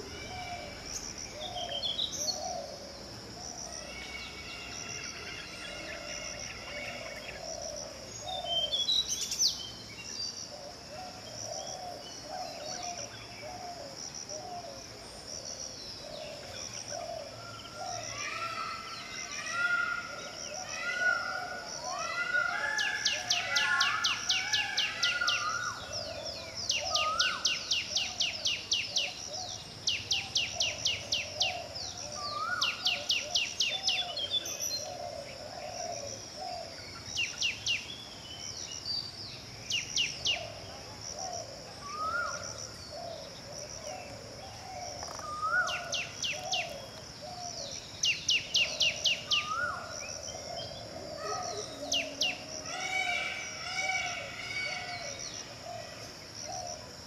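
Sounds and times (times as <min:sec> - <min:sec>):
other birdsong: 0:00.0 - 0:57.0
flycatcher singing trills: 0:22.6 - 0:40.7, 0:44.0 - 0:55.7.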